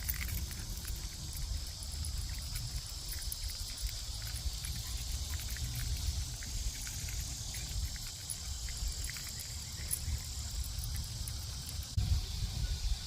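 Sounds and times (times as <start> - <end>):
insects buzzing: 0.0 - 13.0
low uneven rumble: 0.0 - 13.0.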